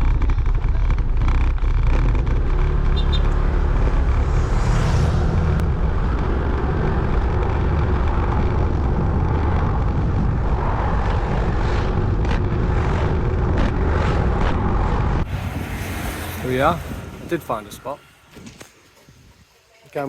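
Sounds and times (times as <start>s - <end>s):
scooter engine: 0.0s - 17.3s
road noise: 0.0s - 20.0s
wind rush on microphone: 4.0s - 19.6s.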